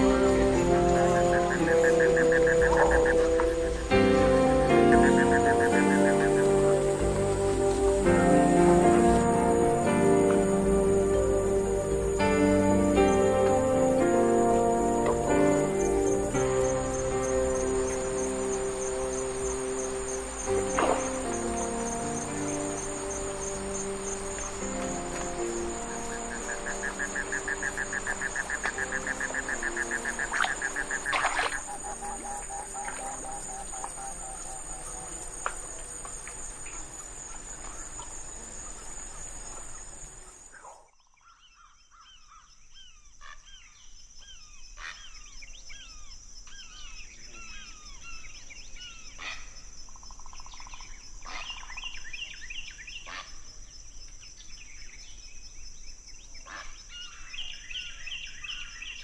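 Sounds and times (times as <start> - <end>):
animal calls: 0.0 - 8.6, 25.2 - 38.0
high insect drone: 0.0 - 40.9.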